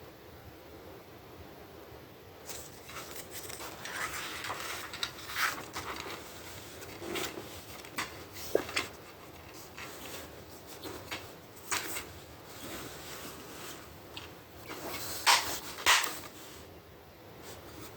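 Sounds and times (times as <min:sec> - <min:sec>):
light clicks and rubbing: 0:02.5 - 0:16.7.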